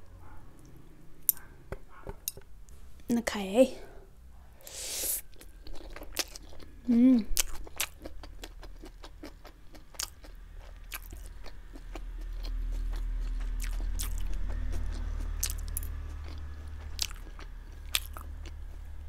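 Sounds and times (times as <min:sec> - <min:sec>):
person chewing noodles: 0:04.6 - 0:19.0.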